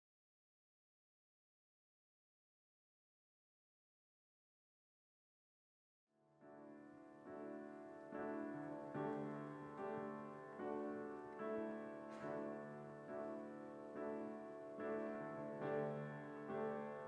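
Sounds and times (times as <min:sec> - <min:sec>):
piano chords: 0:06.4 - 0:17.0.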